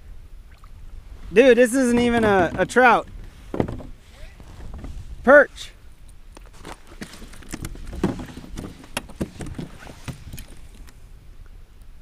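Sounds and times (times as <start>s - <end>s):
knocks and taps on kayak: 1.8s - 4.0s, 6.6s - 10.6s.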